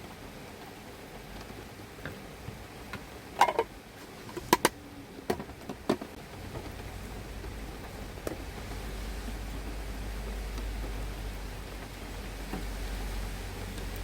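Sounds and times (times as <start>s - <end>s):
steady hiss: 0.0s - 14.0s
objects clicking and knocking: 2.9s - 3.7s.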